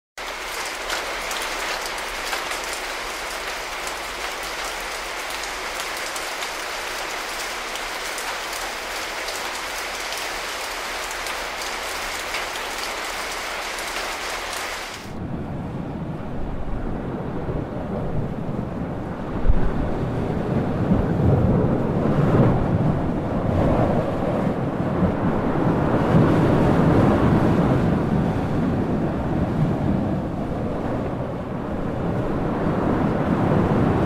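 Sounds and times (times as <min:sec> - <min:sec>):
heavy rain on wet pavement: 0:00.2 - 0:15.2.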